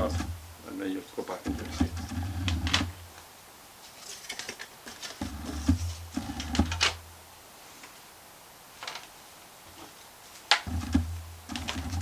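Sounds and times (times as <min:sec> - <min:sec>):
hands working inside laptop: 0:00.0 - 0:00.5, 0:01.3 - 0:03.2, 0:04.1 - 0:07.0, 0:10.5 - 0:12.0.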